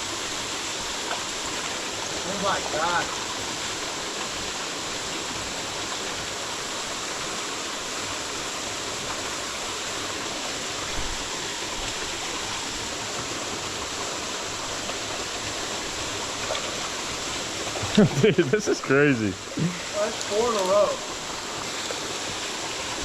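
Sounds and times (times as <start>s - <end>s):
stream water rushing: 0.0s - 23.0s.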